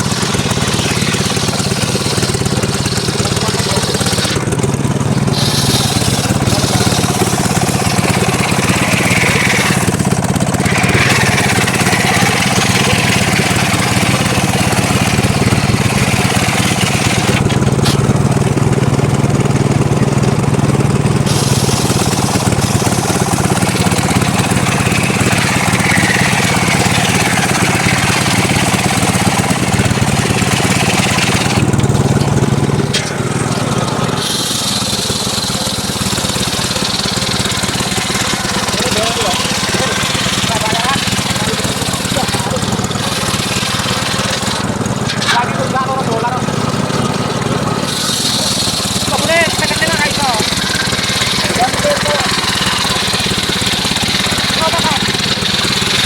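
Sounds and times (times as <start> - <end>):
saw blade hissing through wood: 0.0 - 4.5, 5.2 - 18.1, 21.2 - 31.6, 33.0 - 45.3, 47.8 - 56.0
low engine hum: 0.0 - 56.0.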